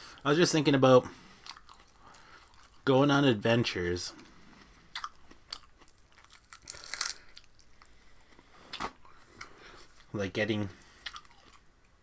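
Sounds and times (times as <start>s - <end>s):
crunching raw vegetables: 4.2s - 10.1s.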